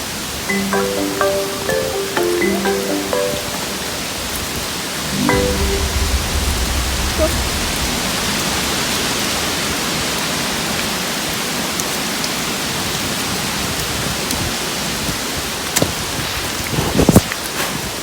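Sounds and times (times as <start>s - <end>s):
steady rain falling: 5.1s - 17.6s.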